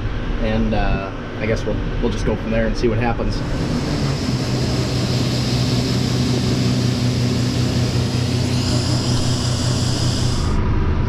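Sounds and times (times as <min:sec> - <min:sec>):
tractor engine droning: 0:03.0 - 0:11.0
high hiss: 0:03.4 - 0:10.6.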